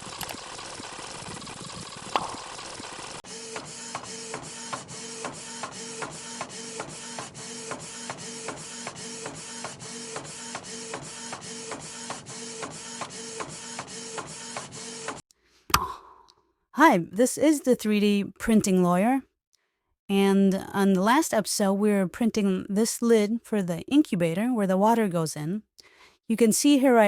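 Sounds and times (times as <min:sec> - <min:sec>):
printer clicking: 0:00.0 - 0:15.2
stepper motors whining: 0:00.0 - 0:15.2.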